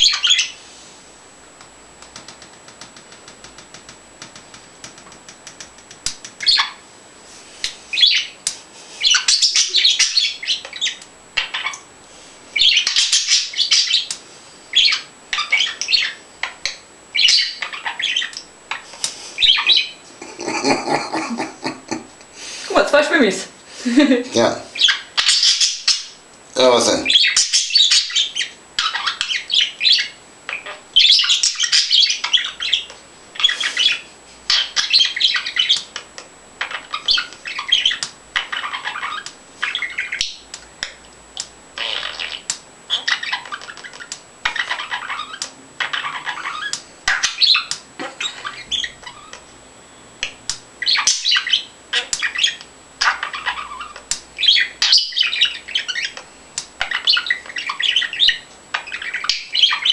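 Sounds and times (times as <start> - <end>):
bird warbling chirps and squawks: 0.0 - 0.6, 6.4 - 6.8, 7.9 - 8.4, 9.0 - 11.9, 12.6 - 14.1, 14.7 - 21.5, 24.4 - 36.0, 36.6 - 40.5, 41.8 - 49.4, 50.8 - 56.2, 56.8 - 59.9.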